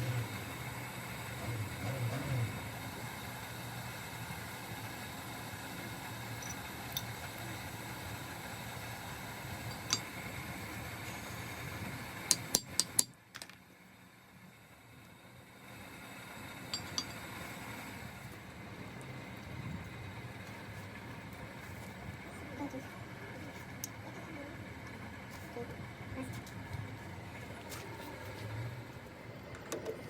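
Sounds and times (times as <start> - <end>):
mechanical hum: 0.0 - 30.0
clinks: 9.7 - 10.1, 16.7 - 17.2.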